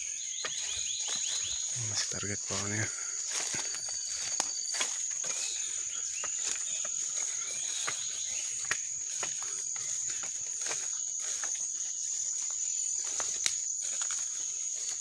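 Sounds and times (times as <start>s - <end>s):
bird chirps: 0.0s - 10.1s
insects droning: 0.0s - 15.0s.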